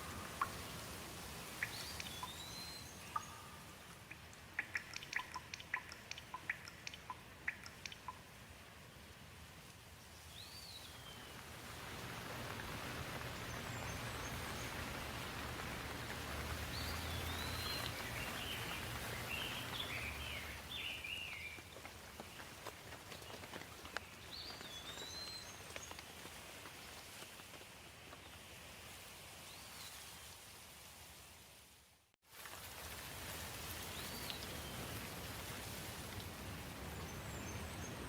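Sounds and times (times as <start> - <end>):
songbird singing: 0.0 - 8.2, 10.2 - 11.5, 12.2 - 26.2, 36.9 - 38.0
steady rain: 0.0 - 38.0.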